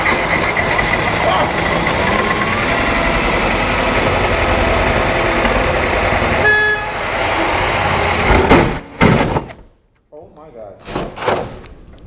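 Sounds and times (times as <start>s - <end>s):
power drill grinding metal: 0.0s - 8.3s.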